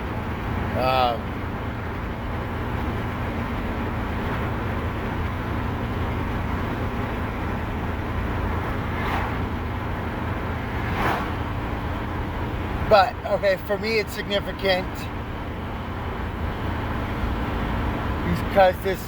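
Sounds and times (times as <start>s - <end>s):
vehicle engine and road noise: 0.0s - 19.0s
brief swishes: 10.9s - 11.4s.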